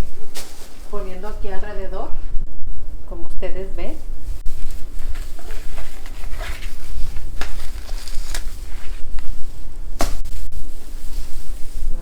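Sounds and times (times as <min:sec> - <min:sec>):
garland rustling and crackling: 0:00.0 - 0:01.7, 0:04.2 - 0:12.0
handling noise on microphone: 0:00.0 - 0:01.7, 0:04.2 - 0:12.0.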